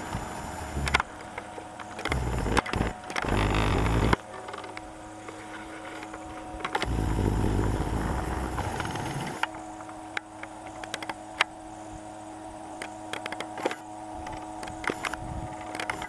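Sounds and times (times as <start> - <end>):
small boat motor humming: 0.0 - 16.0
sharp clicks: 0.1 - 4.9.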